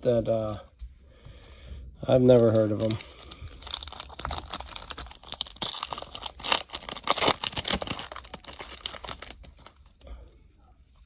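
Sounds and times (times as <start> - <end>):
foil wrapper tearing and crinkling: 2.3 - 9.9.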